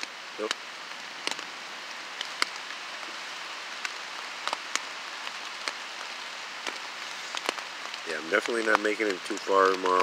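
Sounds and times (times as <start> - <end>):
rain hissing on a tarp: 0.0 - 10.0
drops tapping on a tarp: 2.1 - 2.8, 3.8 - 10.0.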